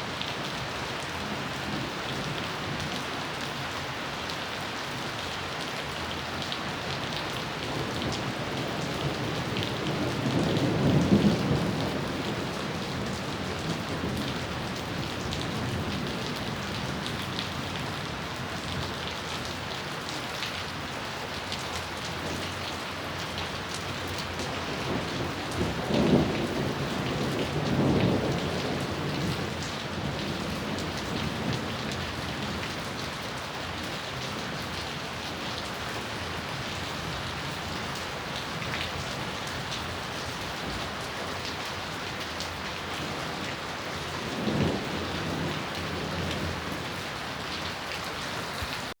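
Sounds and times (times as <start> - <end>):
steady rain falling: 0.0 - 49.0
thunder rumbling: 24.3 - 32.6, 43.0 - 47.0.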